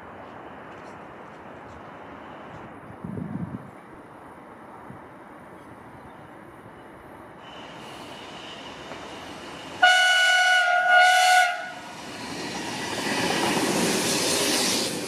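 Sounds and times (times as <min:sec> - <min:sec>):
train rumbling past: 0:00.0 - 0:15.0
train horn: 0:09.8 - 0:11.9.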